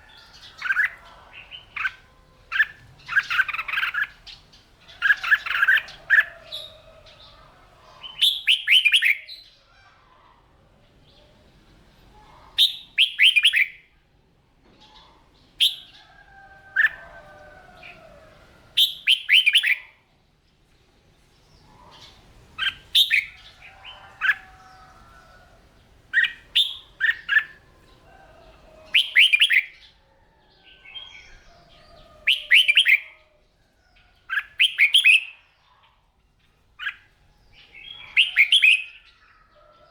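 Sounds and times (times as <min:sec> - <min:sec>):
bird whistled phrases: 0:08.2 - 0:09.3, 0:12.6 - 0:13.8, 0:18.8 - 0:19.8, 0:28.9 - 0:29.7, 0:32.2 - 0:33.1, 0:34.4 - 0:35.4, 0:37.9 - 0:39.0.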